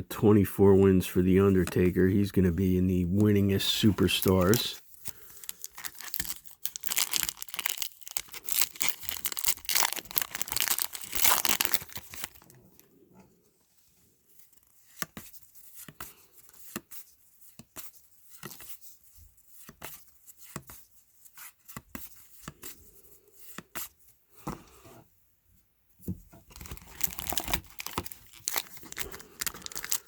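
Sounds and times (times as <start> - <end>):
cards flipping: 3.2 - 12.5
card pack wrapper tearing: 3.2 - 12.6, 26.5 - 30.0.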